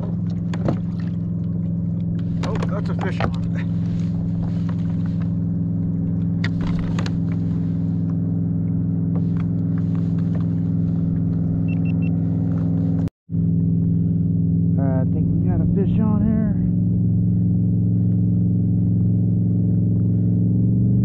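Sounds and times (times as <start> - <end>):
boat motor humming: 0.0 - 21.0
short high beeps: 11.7 - 12.2.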